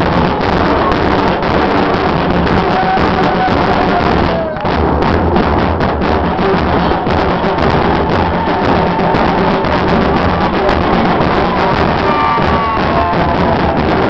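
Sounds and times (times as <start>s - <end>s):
bass drums with cymbals: 0.0s - 14.0s.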